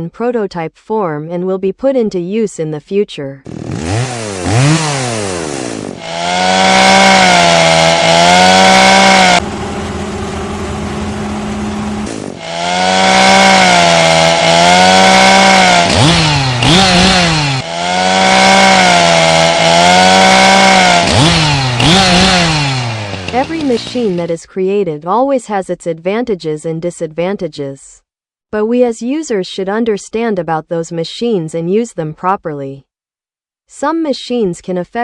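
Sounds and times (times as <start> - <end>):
chainsaw cutting wood: 3.4 - 24.4.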